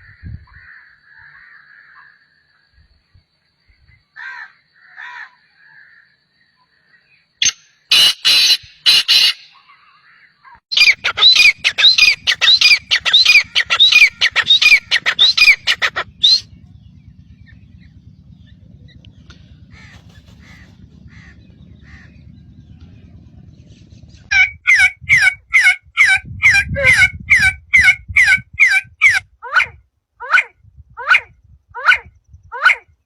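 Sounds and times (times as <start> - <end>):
bird squawking: 7.4 - 16.7, 17.4 - 22.8
low steady background: 11.0 - 24.3.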